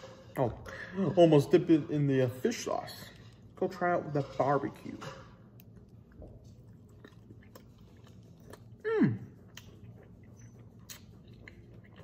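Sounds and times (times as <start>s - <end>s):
person chewing food: 5.4s - 12.0s
mouth clicks and smacks: 9.4s - 12.0s.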